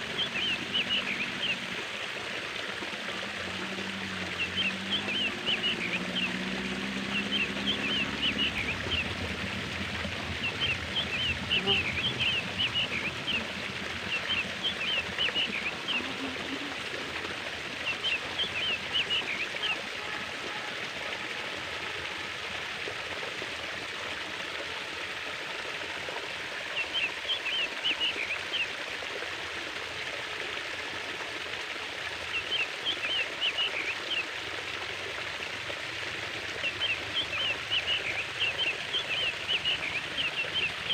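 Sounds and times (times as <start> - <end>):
small birds chirping: 0.0 - 1.6, 4.3 - 16.8, 17.8 - 19.8, 36.6 - 40.9
water flowing: 0.0 - 40.9.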